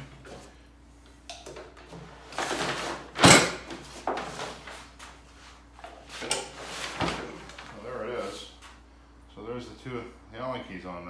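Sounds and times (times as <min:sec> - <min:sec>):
scraping and rustling: 0:01.7 - 0:08.8.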